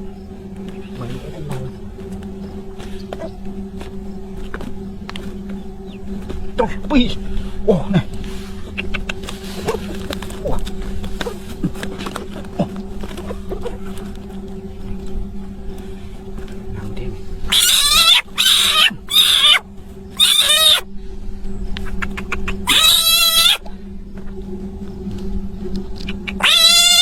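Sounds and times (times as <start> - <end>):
steady low hum: 0.0 - 27.0
frog warbling calls: 8.6 - 14.3, 17.4 - 20.9, 21.8 - 23.7, 26.0 - 27.0.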